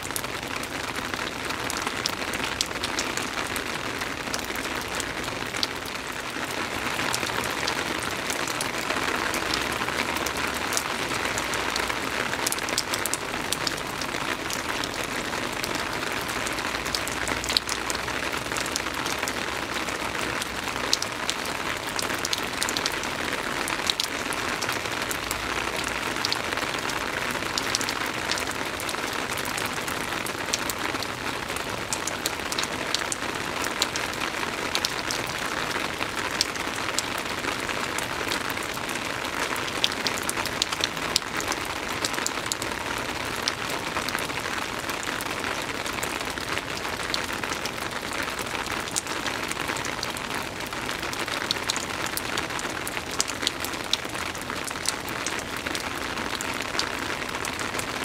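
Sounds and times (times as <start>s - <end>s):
soft rain falling: 0.0s - 58.0s
rain drop ticks: 7.1s - 23.0s.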